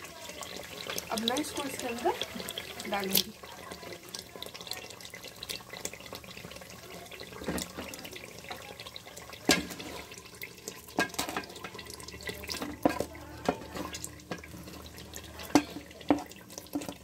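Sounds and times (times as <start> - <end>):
masala sizzling in oil: 0.0 - 17.0
knocks of cubes added to pan: 9.4 - 17.0.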